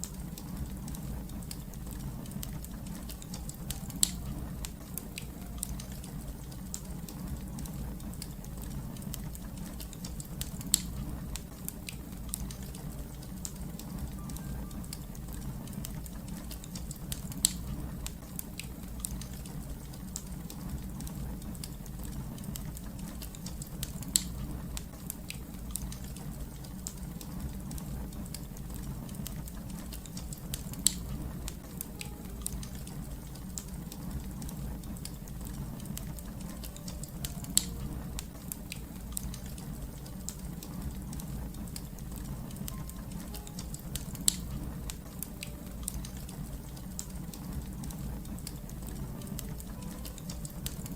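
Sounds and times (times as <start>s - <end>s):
wood fire crackling: 0.0s - 50.9s
loud fire pops: 0.5s - 14.2s.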